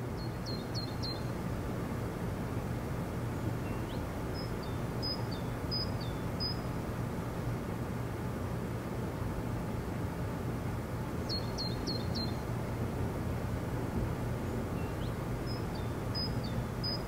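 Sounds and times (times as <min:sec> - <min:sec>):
low background noise: 0:00.0 - 0:17.0
small bird chirping: 0:00.2 - 0:01.3, 0:03.6 - 0:06.7, 0:11.3 - 0:12.4, 0:14.8 - 0:17.0.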